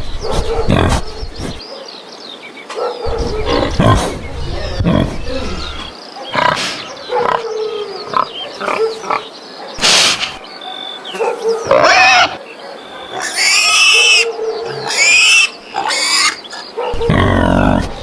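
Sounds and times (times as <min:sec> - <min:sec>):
animal grunting: 0:00.4 - 0:01.6, 0:03.0 - 0:10.4, 0:16.6 - 0:18.0
animal squeal: 0:11.7 - 0:12.4, 0:13.1 - 0:16.4.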